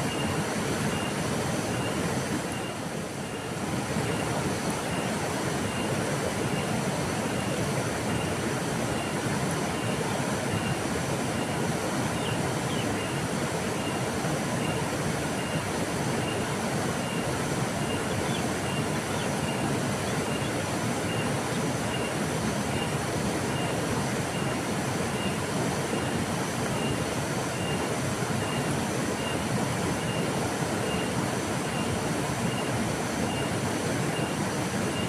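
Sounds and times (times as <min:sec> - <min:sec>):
river flowing: 0:00.0 - 0:35.0.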